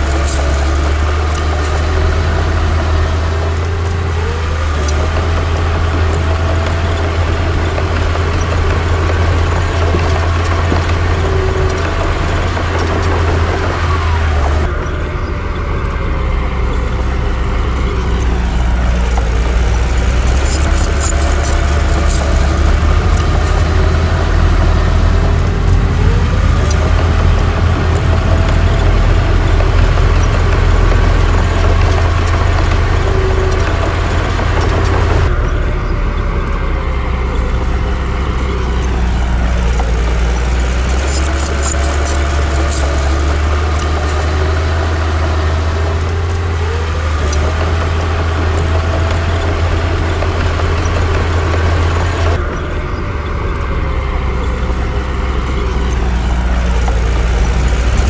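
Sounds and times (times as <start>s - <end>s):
bulldozer diesel engine running: 0.0s - 58.0s
light metallic clinking: 16.7s - 35.8s, 37.3s - 52.4s.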